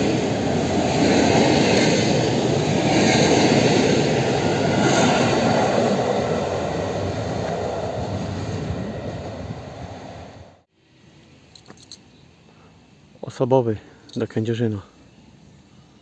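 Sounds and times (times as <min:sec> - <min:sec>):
train wheels rumbling on rails: 0:00.0 - 0:10.6.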